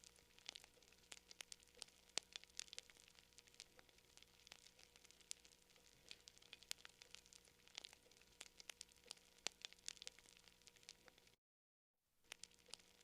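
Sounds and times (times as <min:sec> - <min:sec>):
campfire crackling: 0:00.0 - 0:11.4, 0:12.3 - 0:13.0.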